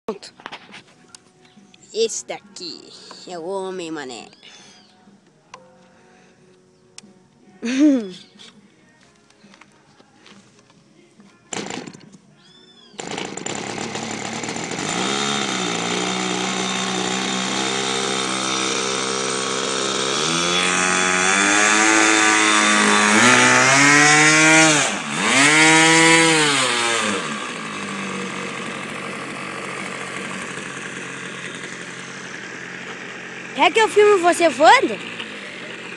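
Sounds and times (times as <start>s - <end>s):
model airplane engine running: 27.1s - 35.9s.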